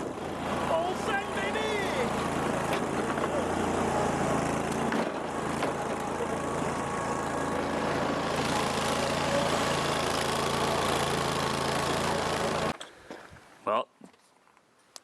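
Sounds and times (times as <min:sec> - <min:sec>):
lawn tractor engine running: 0:00.0 - 0:12.8.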